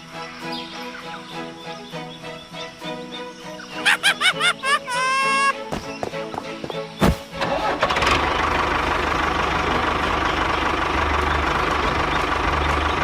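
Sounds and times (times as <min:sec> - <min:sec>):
small engine running: 0:07.4 - 0:13.0.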